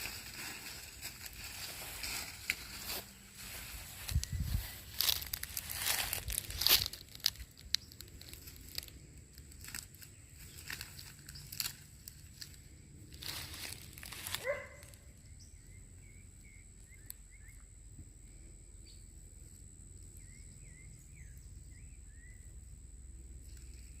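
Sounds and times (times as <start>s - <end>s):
rustle: 0.0s - 15.5s.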